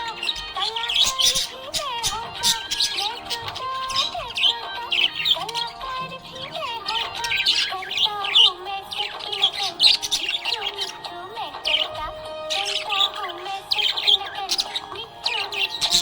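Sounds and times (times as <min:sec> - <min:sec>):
background music: 0:00.0 - 0:16.0
budgerigars chirping: 0:00.0 - 0:16.0.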